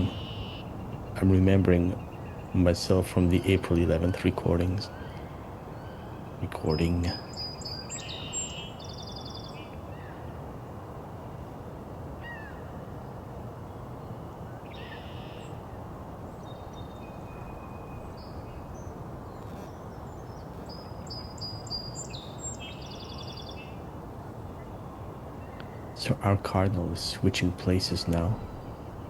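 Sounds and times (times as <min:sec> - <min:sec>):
songbirds singing: 0:00.0 - 0:12.8, 0:13.5 - 0:29.0
low background rumble: 0:24.6 - 0:29.0.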